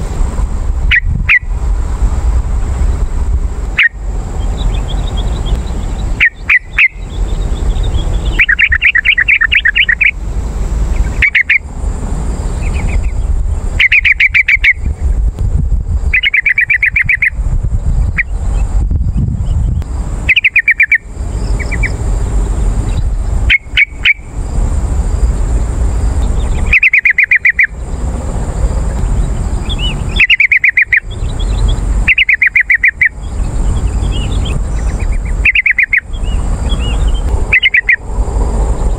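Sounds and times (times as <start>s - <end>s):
steady low rumble: 0.0s - 38.9s
bird chattering song: 0.9s - 1.6s, 3.7s - 10.2s, 10.9s - 11.7s, 12.4s - 15.3s, 16.0s - 24.4s, 25.3s - 38.1s.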